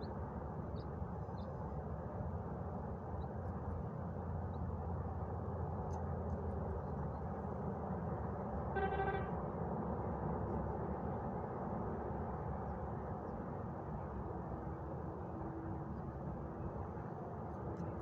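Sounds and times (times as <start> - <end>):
car horn honk: 8.8 - 9.3.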